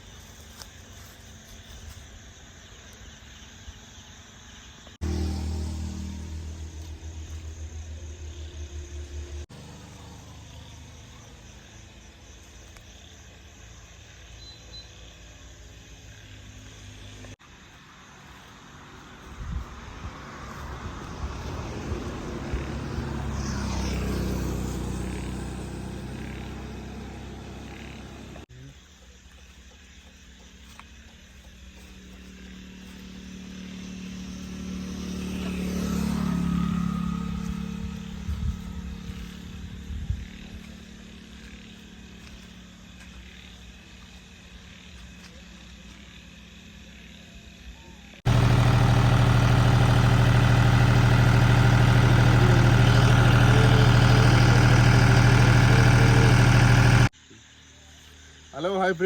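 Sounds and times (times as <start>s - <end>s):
vehicle engine passing by: 5.0s - 11.9s, 17.9s - 28.5s, 31.9s - 41.9s, 48.2s - 57.1s
tractor diesel engine rumbling: 21.0s - 28.5s, 48.3s - 57.1s.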